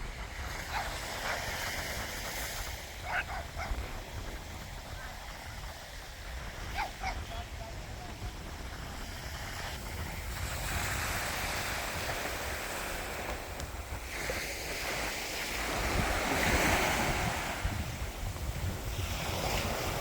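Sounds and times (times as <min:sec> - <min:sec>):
small waves breaking on beach: 0:00.0 - 0:20.0
wind buffeting microphone: 0:00.0 - 0:20.0.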